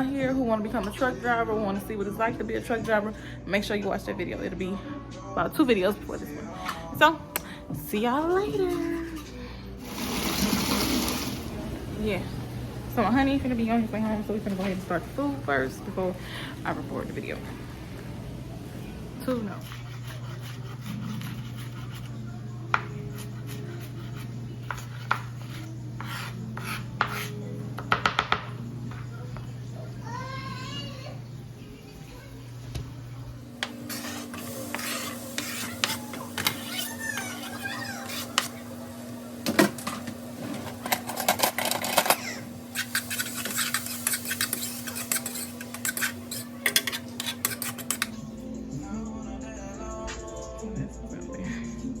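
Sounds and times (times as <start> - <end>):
steady low hum: 11.1 - 30.0
low hum: 11.2 - 20.0
dishes and utensils clinking: 33.6 - 38.6, 39.5 - 48.2.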